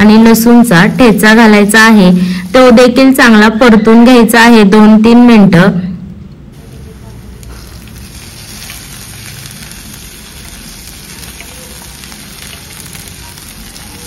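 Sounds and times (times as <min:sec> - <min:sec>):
onions sizzling in hot oil: 0:00.0 - 0:03.5, 0:06.6 - 0:14.0.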